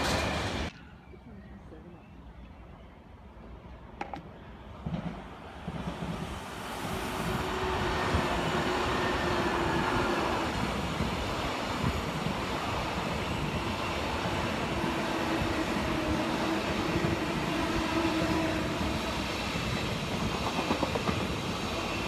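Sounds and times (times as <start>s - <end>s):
train wheels rumbling on rail: 0.0s - 0.8s, 4.0s - 22.0s.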